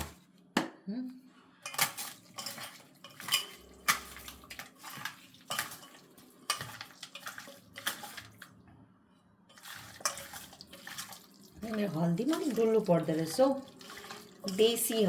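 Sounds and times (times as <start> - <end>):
metal clinking against a bowl: 1.6 - 8.2, 9.5 - 11.0, 12.2 - 15.0.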